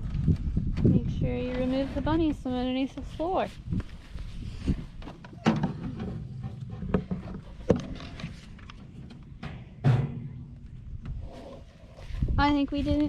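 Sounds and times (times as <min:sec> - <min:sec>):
wind rumble on microphone: 0:00.0 - 0:05.2, 0:10.4 - 0:13.0
sharp knocks and bumps: 0:05.0 - 0:11.2
microphone handling noise: 0:10.2 - 0:13.0.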